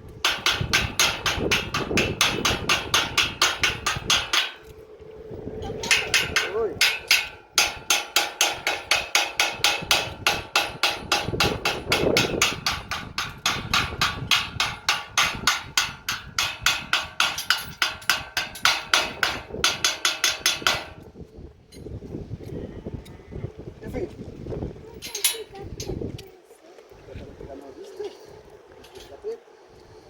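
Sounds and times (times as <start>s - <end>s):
hammer striking steel gate: 0.3s - 4.6s, 5.8s - 21.0s.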